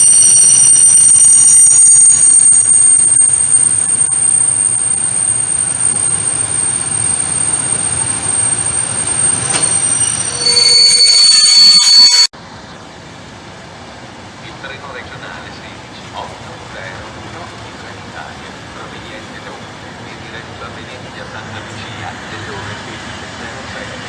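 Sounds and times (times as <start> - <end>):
train wheel squeal: 0.0 - 12.3
rumble of freight wagons: 2.3 - 12.2.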